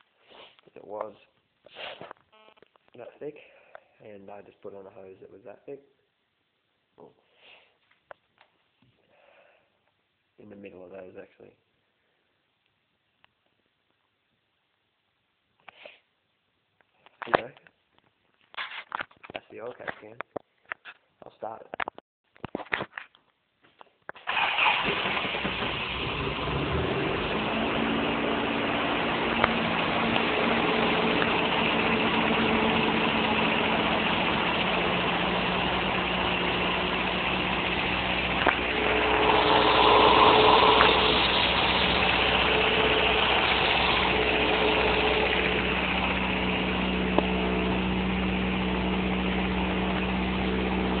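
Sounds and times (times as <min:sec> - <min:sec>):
car engine starting and idling: 0:24.2 - 0:51.0.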